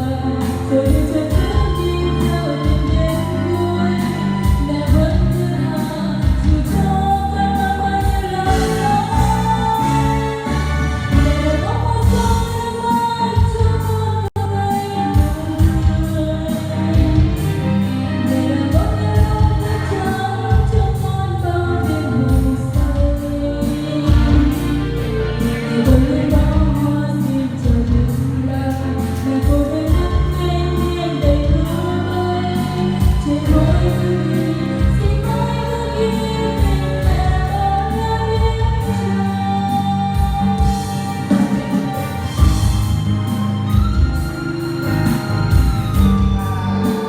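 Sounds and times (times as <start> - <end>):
person singing: 0.0 - 47.0
electronic keyboard with beat: 36.2 - 47.0.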